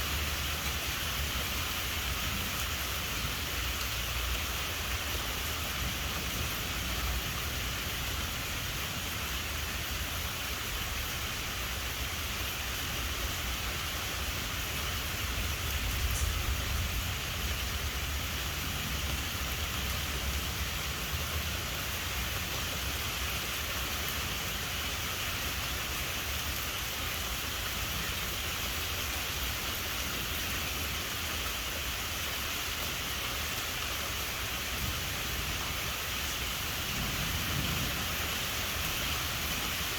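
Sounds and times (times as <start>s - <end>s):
steady rain falling: 0.0s - 39.9s
low rumble of thunder: 15.4s - 21.0s, 36.7s - 39.7s.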